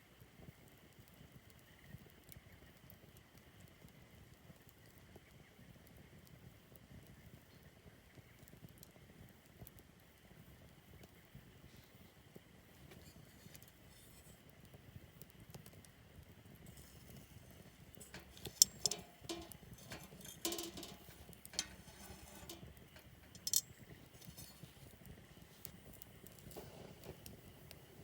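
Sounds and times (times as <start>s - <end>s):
small hard objects clinking: 16.7s - 24.9s.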